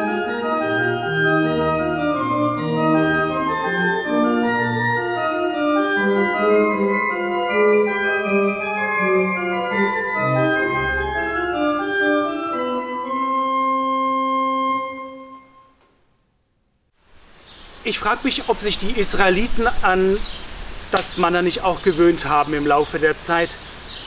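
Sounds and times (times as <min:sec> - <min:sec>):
organ playing sustained chords: 0:00.0 - 0:15.7, 0:21.1 - 0:24.0.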